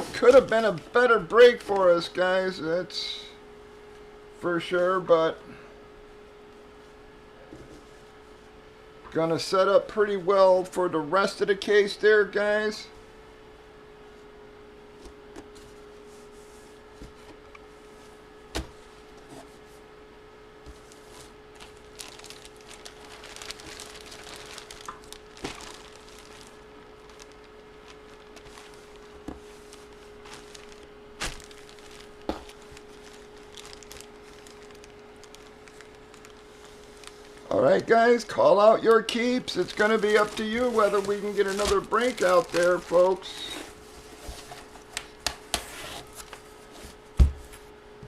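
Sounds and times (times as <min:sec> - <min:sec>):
steady electrical hum: 0:00.0 - 0:48.0
soft rustling: 0:20.7 - 0:37.5, 0:39.6 - 0:44.9.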